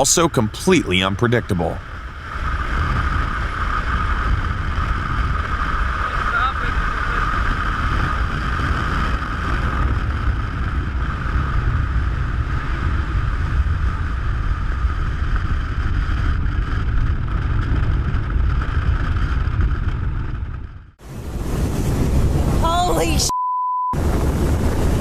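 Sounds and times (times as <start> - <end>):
heavy sea: 0.0 - 11.1, 21.0 - 23.3, 24.0 - 25.0
wind roaring on microphone: 0.0 - 23.3, 24.0 - 25.0.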